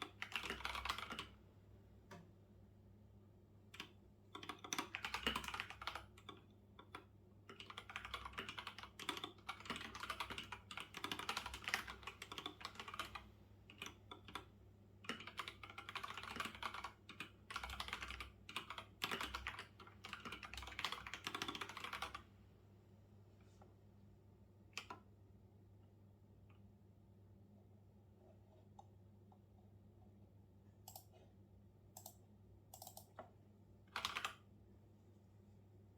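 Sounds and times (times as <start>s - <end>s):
computer keyboard typing: 0.0s - 1.3s, 3.8s - 22.2s, 30.9s - 31.1s, 32.0s - 33.2s, 33.9s - 34.4s.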